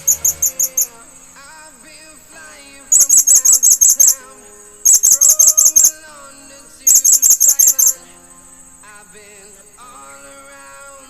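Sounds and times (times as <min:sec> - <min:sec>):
parrots chirping: 0:00.0 - 0:01.4, 0:02.9 - 0:06.0, 0:06.9 - 0:08.0
background music: 0:00.0 - 0:11.0.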